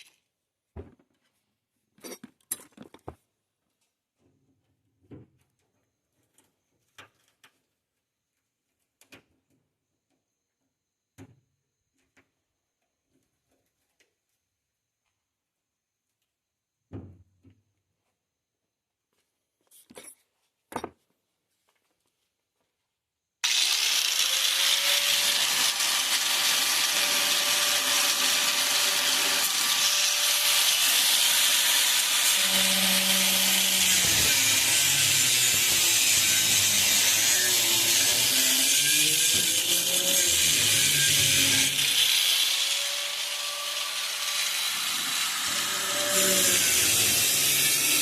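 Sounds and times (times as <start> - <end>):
power tool cutting sheet metal: 23.4 - 48.0.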